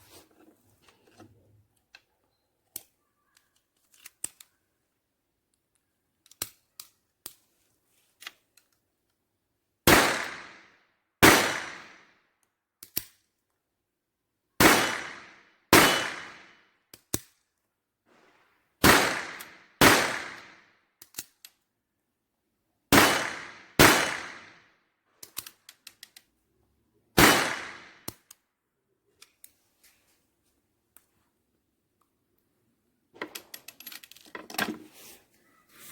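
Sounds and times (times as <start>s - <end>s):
pistol shots with echo: 9.9s - 10.6s, 11.2s - 12.0s, 14.6s - 16.5s, 18.8s - 20.5s, 22.9s - 24.6s, 27.2s - 28.1s.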